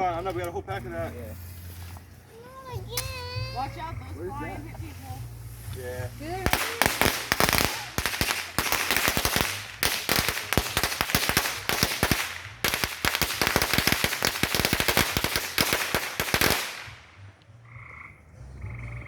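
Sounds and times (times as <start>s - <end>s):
firecrackers popping: 2.8s - 17.5s.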